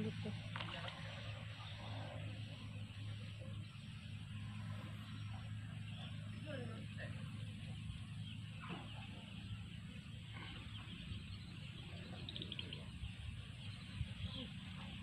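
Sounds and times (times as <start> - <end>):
low steady rumble: 0.0 - 15.0
small bird chirps: 10.6 - 13.0.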